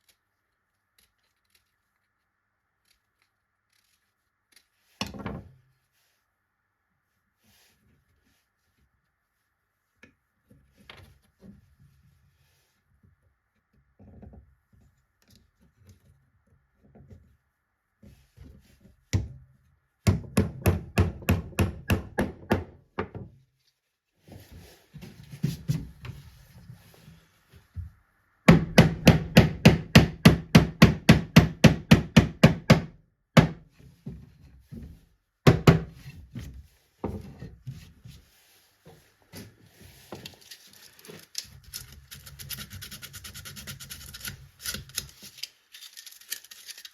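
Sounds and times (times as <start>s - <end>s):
knocks and handling sounds: 0.0s - 5.9s, 22.0s - 28.0s, 33.4s - 46.9s.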